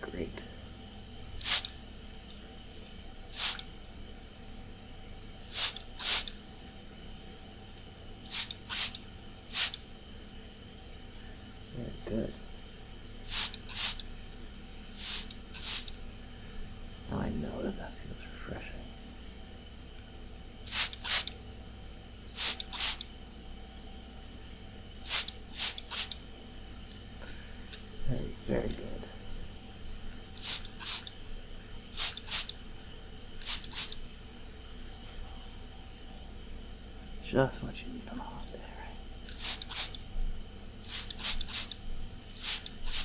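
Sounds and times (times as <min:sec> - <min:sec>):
air conditioner hum: 0:00.0 - 0:43.0
spray bottle spritzing water: 0:01.4 - 0:01.7, 0:03.4 - 0:03.6, 0:05.5 - 0:06.4, 0:08.2 - 0:09.8, 0:13.3 - 0:14.0, 0:14.9 - 0:16.0, 0:20.7 - 0:21.3, 0:22.3 - 0:23.0, 0:25.0 - 0:26.2, 0:30.4 - 0:31.1, 0:31.9 - 0:32.6, 0:33.4 - 0:34.0, 0:39.3 - 0:40.0, 0:40.8 - 0:41.8, 0:42.4 - 0:43.0.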